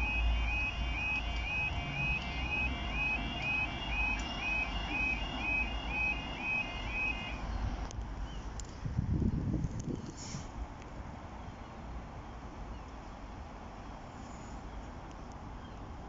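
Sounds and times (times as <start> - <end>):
warbling level crossing alarm: 0.0 - 7.4
low traffic rumble: 0.0 - 16.0.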